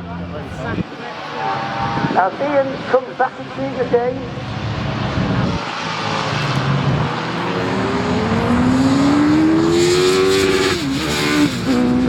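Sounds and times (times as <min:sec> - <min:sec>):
motorcycle engine accelerating: 0:04.3 - 0:12.0.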